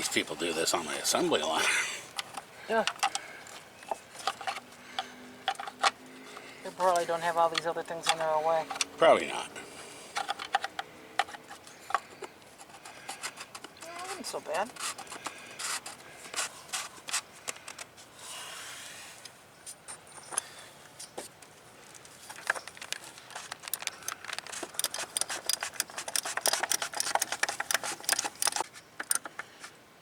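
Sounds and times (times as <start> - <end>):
short scraping rub: 12.6 - 17.2
ratchet wrench clicking: 24.6 - 29.3.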